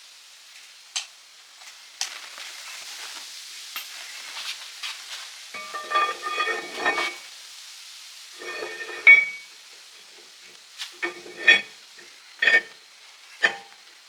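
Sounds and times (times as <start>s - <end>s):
steady hiss: 0.0s - 14.0s
metal tools clinking: 5.6s - 7.2s, 8.4s - 9.4s, 11.0s - 11.7s, 12.4s - 12.7s, 13.4s - 13.7s.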